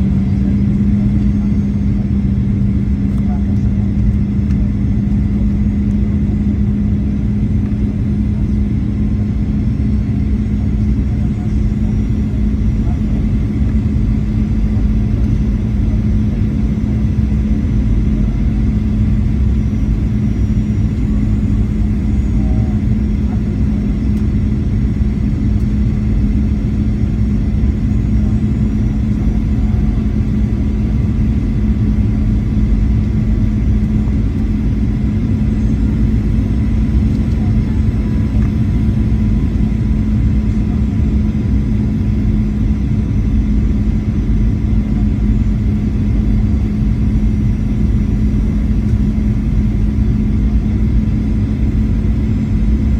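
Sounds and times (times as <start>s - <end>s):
jet engine rumble: 0.0s - 52.9s.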